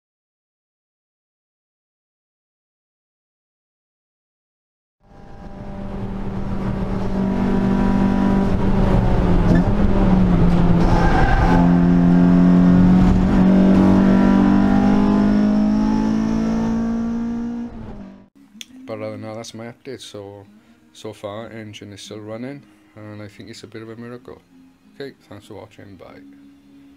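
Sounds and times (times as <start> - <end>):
car engine under load: 5.1 - 18.3.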